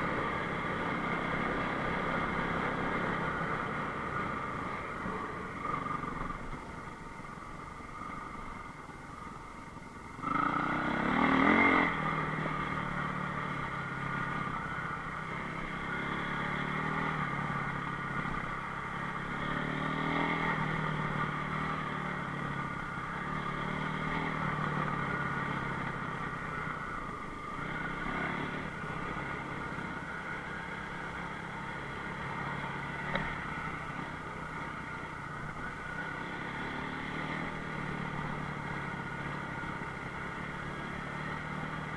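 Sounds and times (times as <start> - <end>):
motorcycle engine revving: 10.2 - 41.9.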